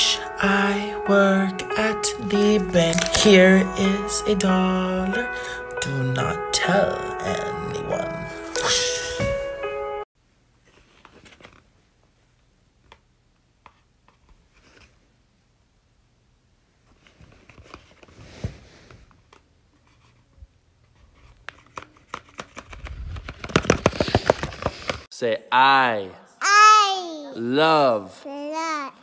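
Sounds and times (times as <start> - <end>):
music: 0.0 - 10.1
paper puppet rustling and clicking: 20.9 - 25.1.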